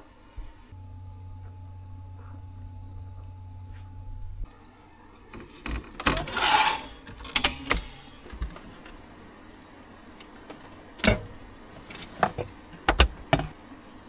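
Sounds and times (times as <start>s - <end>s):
rubbing rustling sound: 10.3s - 13.5s.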